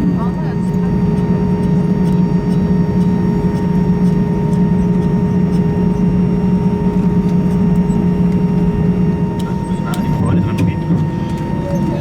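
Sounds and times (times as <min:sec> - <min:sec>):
aircraft cabin hum: 0:00.0 - 0:12.0.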